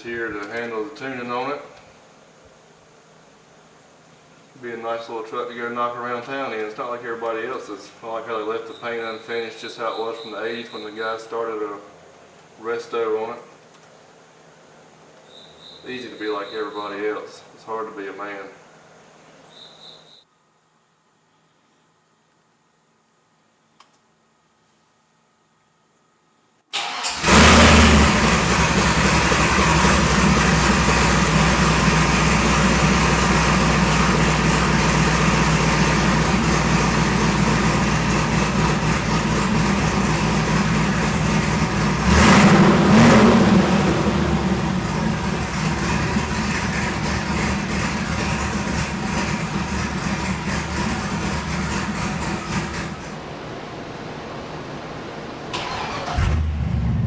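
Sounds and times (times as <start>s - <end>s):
truck engine starting and idling: 26.7s - 53.4s, 55.4s - 57.0s
engine revving: 26.8s - 53.2s, 55.6s - 57.0s.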